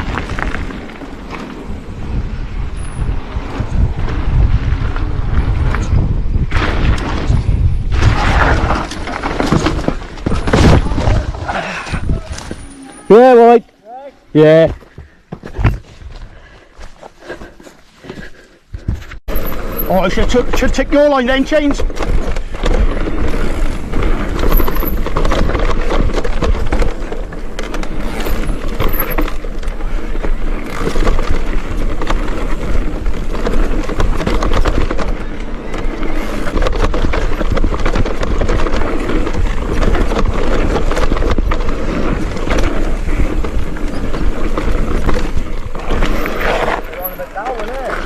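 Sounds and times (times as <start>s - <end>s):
wind buffeting microphone: 0.0s - 12.6s
bike rattling on rough trail: 0.0s - 13.6s, 14.4s - 48.0s.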